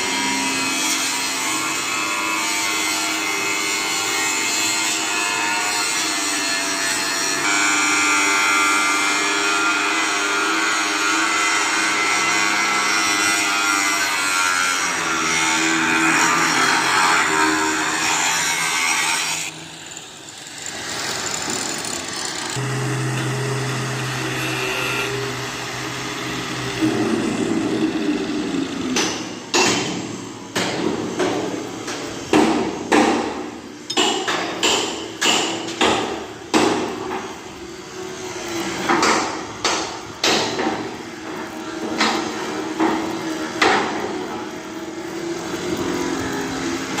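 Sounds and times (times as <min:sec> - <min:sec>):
hammer striking metal: 0:28.9 - 0:37.3.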